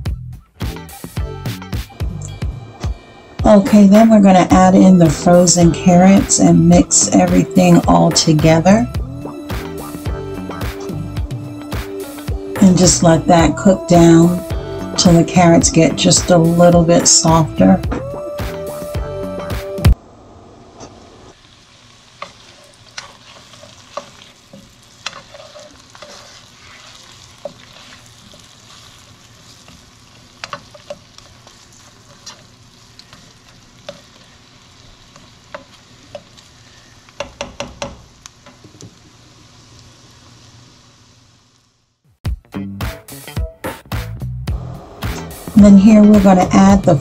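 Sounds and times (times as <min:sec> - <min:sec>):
vegetables sizzling in a pan: 0:00.6 - 0:42.0, 0:44.2 - 0:47.0
utensil clicking against pan: 0:22.2 - 0:26.3, 0:30.4 - 0:31.3, 0:37.1 - 0:38.6.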